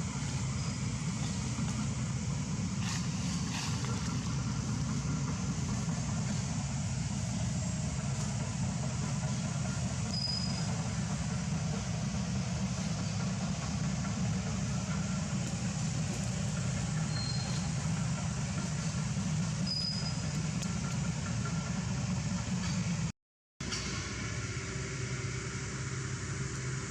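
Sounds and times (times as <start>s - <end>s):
low outdoor rumble: 0.0s - 26.9s
faint high chirps: 17.0s - 17.9s.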